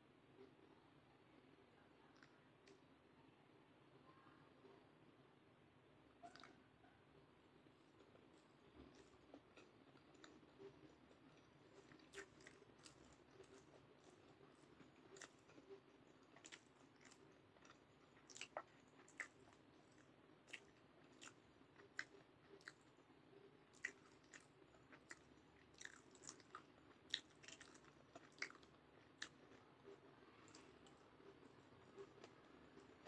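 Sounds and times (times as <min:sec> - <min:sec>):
wet mouth chewing sounds: 0:08.0 - 0:23.0, 0:23.7 - 0:33.0.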